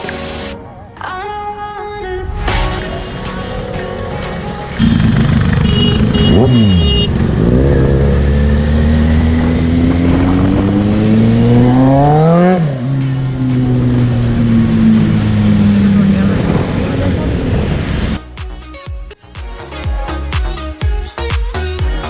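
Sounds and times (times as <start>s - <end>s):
motorcycle engine revving: 2.8s - 18.2s.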